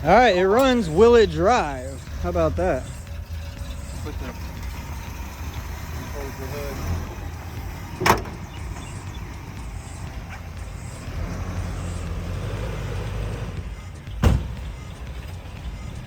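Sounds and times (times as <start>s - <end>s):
pickup engine idling: 0.0s - 16.0s
car hood slamming: 4.3s - 10.5s, 14.1s - 14.8s.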